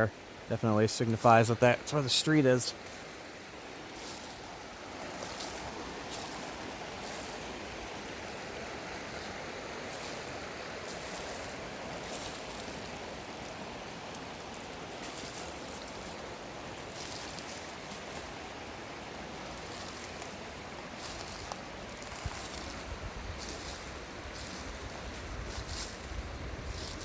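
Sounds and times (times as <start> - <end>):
steady rushing noise: 0.0 - 27.0
faint crunches: 3.9 - 7.6, 9.0 - 18.5, 19.4 - 27.0.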